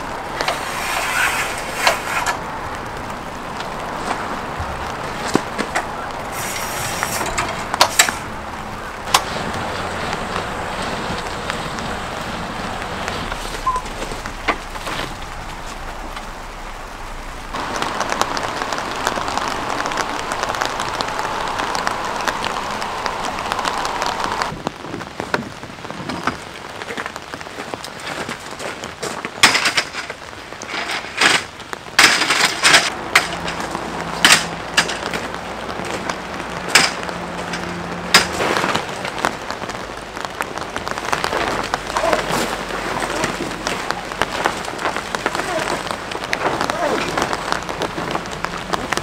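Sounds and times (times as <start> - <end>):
steady rain falling: 0.0 - 49.0
camping gear clicking and knocking: 3.6 - 8.3, 9.0 - 12.0, 27.9 - 39.6.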